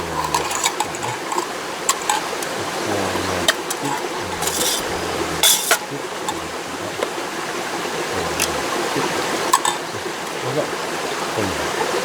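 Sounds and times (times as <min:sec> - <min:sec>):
mountain stream rushing: 0:00.0 - 0:12.0
faint clicks: 0:08.3 - 0:08.6.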